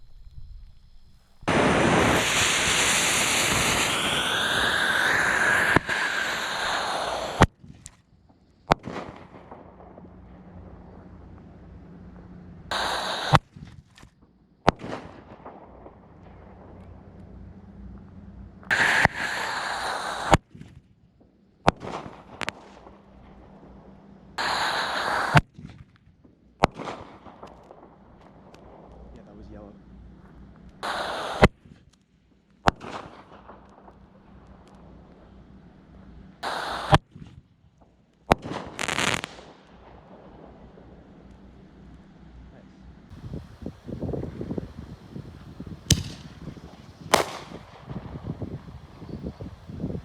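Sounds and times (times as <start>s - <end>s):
firework fuse hissing: 0.0s - 8.0s, 12.7s - 13.6s, 18.7s - 20.4s, 24.4s - 25.5s, 30.8s - 31.6s, 36.4s - 37.2s, 38.5s - 39.8s, 43.1s - 50.0s
small firework crackles: 0.0s - 42.2s, 43.1s - 50.0s
firework shell bursting bang: 45.8s - 48.4s
firework shell launch bang: 45.8s - 48.4s.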